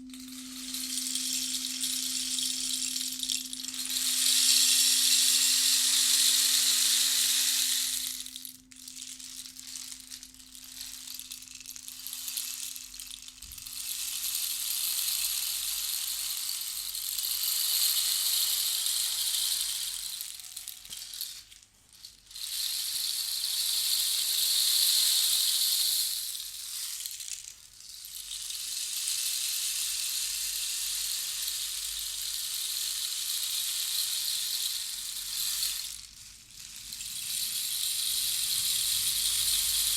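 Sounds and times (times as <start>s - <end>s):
singing bowl hum: 0.0s - 4.2s
rattling shaker hiss: 0.0s - 39.9s.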